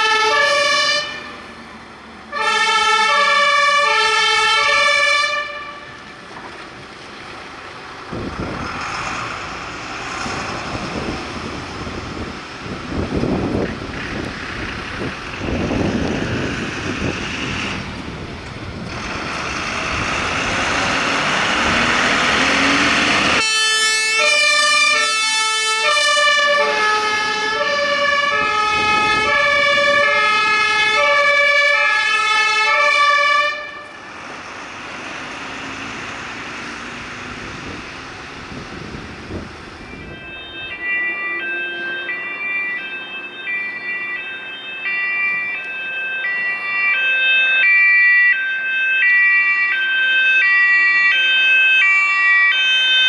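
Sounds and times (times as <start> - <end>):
two-tone emergency siren: 0.0 - 1.6, 2.3 - 6.2, 9.8 - 53.0
vehicle passing: 5.9 - 49.7.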